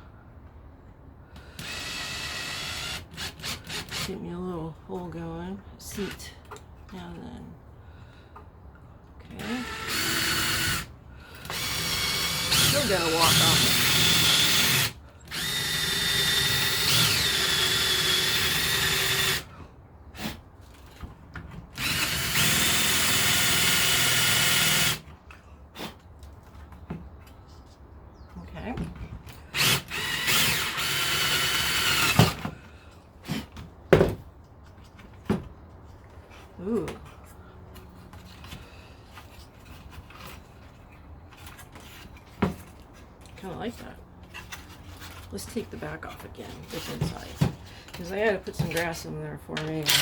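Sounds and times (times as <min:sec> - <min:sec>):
power drill boring into wood: 0:01.6 - 0:04.1, 0:09.4 - 0:19.5, 0:21.8 - 0:25.0, 0:29.5 - 0:32.5, 0:49.8 - 0:50.0.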